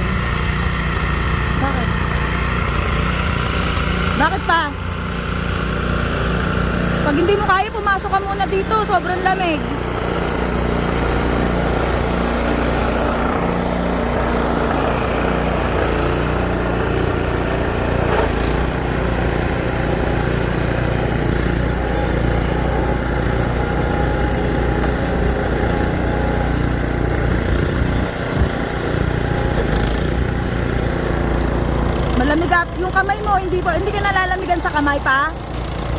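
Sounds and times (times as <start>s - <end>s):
snowblower engine running: 0.0s - 35.9s.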